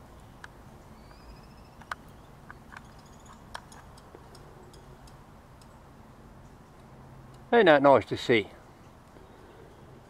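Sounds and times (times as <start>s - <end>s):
high bird chirps: 0.8s - 3.8s
bird trill: 0.8s - 5.1s.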